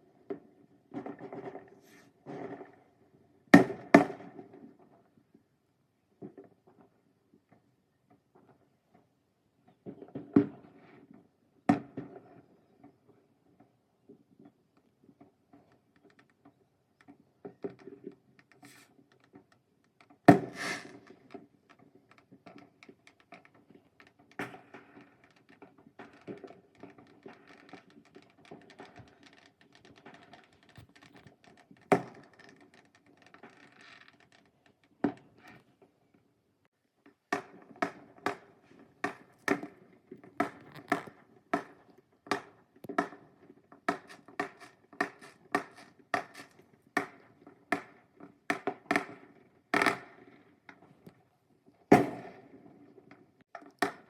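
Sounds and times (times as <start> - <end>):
fireworks bangs and pops: 20.0 - 34.4, 51.9 - 52.8.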